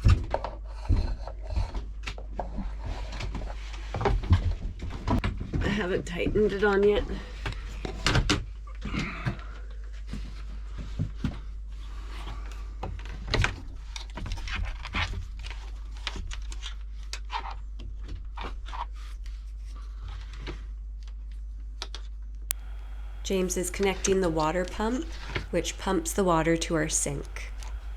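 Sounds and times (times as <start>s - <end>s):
hands clicking hose fittings: 22.5s - 27.9s
steady low hum: 22.5s - 27.9s.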